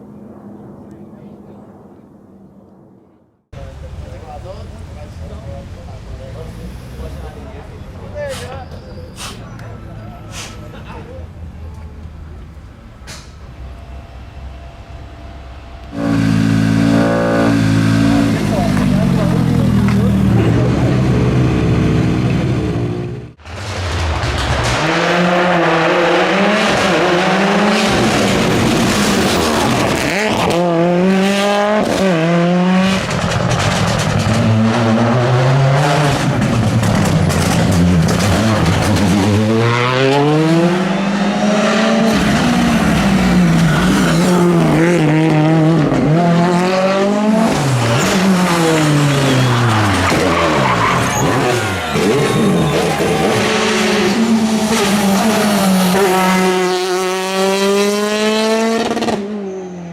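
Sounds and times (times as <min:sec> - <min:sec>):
rally car engine revving: 0:13.5 - 0:59.6
tyres squealing: 0:47.6 - 0:56.0.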